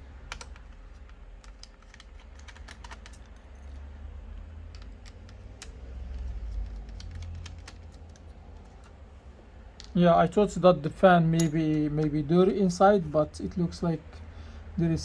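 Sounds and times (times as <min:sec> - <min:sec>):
low rumble of handling noise: 0:00.0 - 0:15.0
light clicks and taps: 0:00.2 - 0:09.0.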